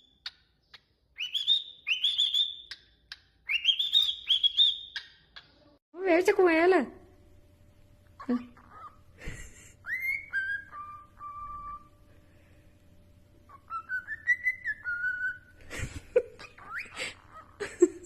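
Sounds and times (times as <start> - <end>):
cockatiel whistling: 0.0 - 5.2, 9.8 - 11.9, 13.5 - 15.5.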